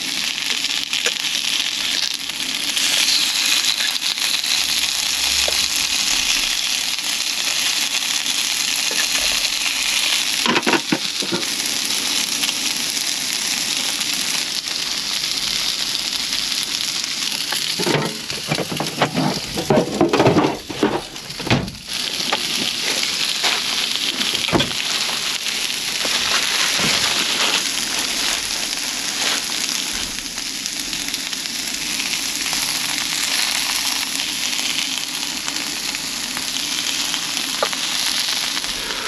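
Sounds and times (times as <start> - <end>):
food sizzling in a pan: 0.0 - 39.0
knocks and clatters: 17.8 - 25.2.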